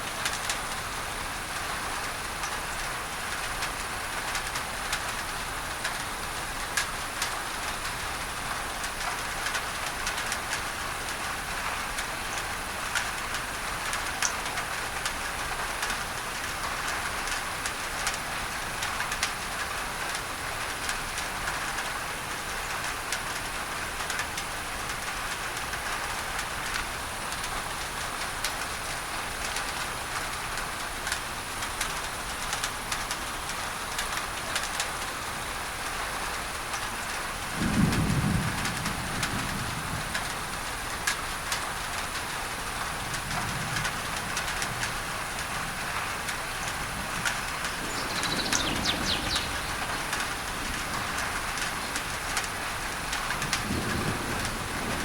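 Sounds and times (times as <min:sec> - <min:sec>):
rain on a tin roof: 0:00.0 - 0:55.0
low thunder rumbling: 0:37.3 - 0:55.0
bird chirping: 0:47.8 - 0:50.4.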